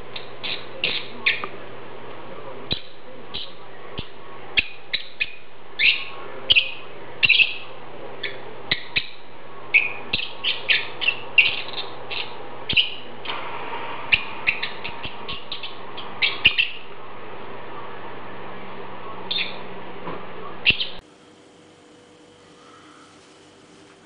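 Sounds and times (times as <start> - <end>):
bird chirping: 0.1 - 1.5, 2.7 - 13.1, 14.1 - 16.9, 19.3 - 19.7, 20.6 - 21.0.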